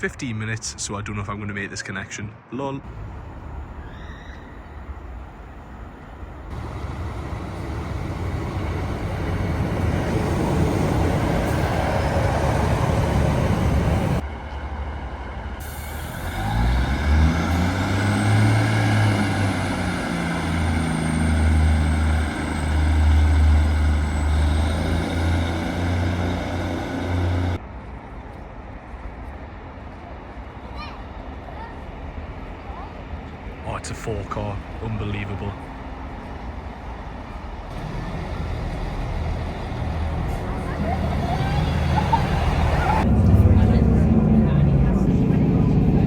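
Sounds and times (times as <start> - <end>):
train rushing noise: 2.9 - 46.0
diesel engine revving: 6.5 - 14.2, 15.6 - 27.6, 37.7 - 46.0.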